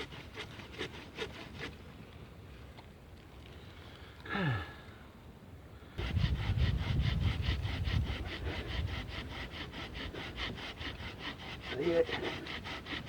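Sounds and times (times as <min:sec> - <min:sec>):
hand saw cutting log: 0:00.0 - 0:01.8, 0:06.0 - 0:13.0.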